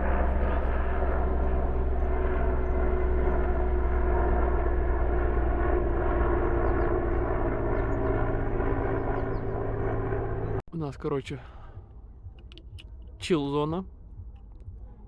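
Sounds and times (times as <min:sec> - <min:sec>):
helicopter drone: 0:00.0 - 0:10.6.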